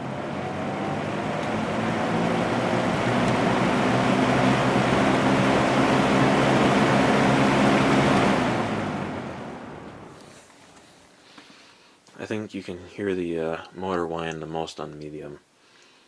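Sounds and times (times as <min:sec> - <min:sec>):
box fan motor whining: 0:00.0 - 0:10.3
fan air rushing: 0:00.0 - 0:10.5.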